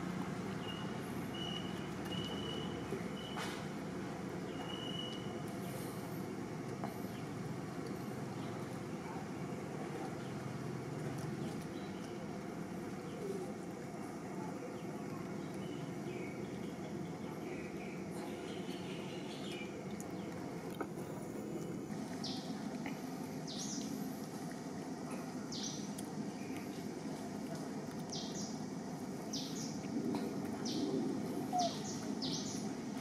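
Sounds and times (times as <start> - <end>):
low background noise: 0.0 - 33.0
birds chirping: 0.6 - 3.4, 8.3 - 24.1, 25.1 - 27.3, 28.1 - 32.8.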